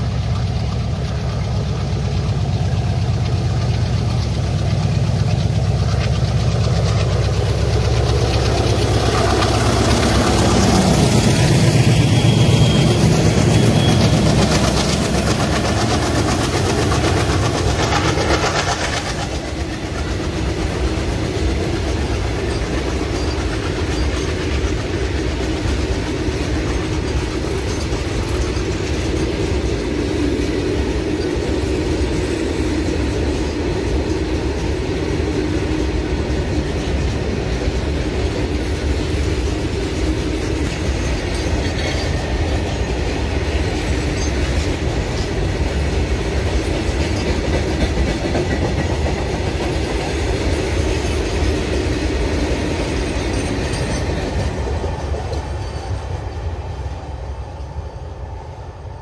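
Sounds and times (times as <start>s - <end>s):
diesel locomotive engines: 0.0s - 59.0s
freight wagon wheels clacking: 0.2s - 34.8s.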